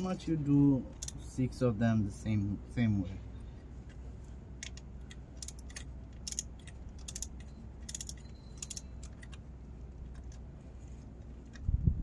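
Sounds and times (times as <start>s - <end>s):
ratchet wrench clicking: 4.6s - 9.4s.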